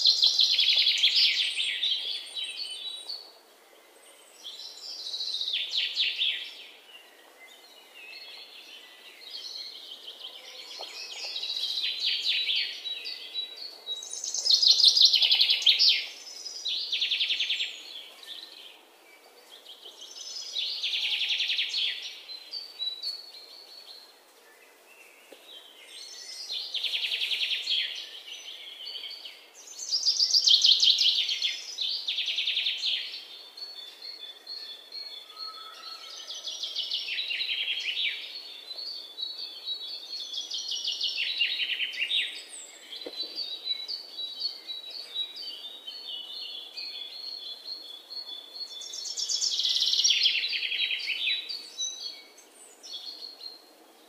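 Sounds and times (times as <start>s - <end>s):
birds singing: 0.0s - 54.0s.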